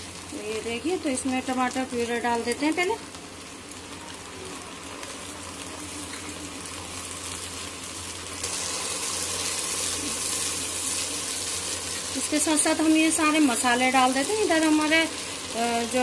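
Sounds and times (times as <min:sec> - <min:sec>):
tomato puree sizzling in oil: 0:00.0 - 0:16.0.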